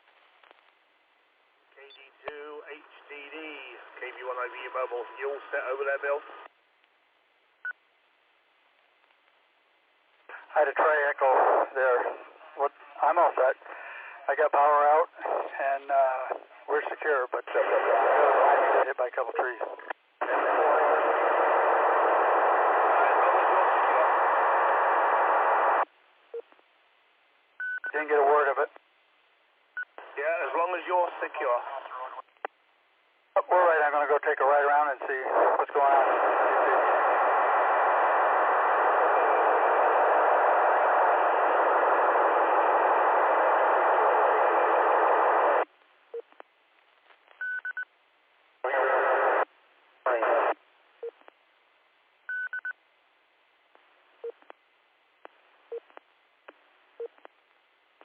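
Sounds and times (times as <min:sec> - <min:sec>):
radio static hiss: 0:01.7 - 0:06.6, 0:10.2 - 0:26.5, 0:27.9 - 0:28.8, 0:29.8 - 0:32.6, 0:33.3 - 0:47.8, 0:48.6 - 0:51.4.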